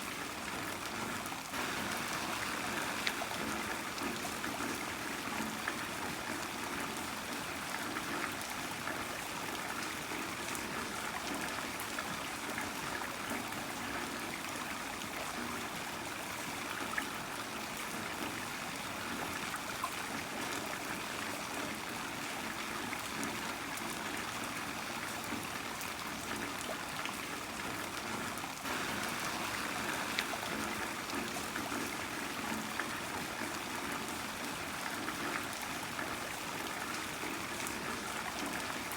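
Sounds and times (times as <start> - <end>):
heavy rain falling: 1.6 - 5.7, 28.6 - 33.8.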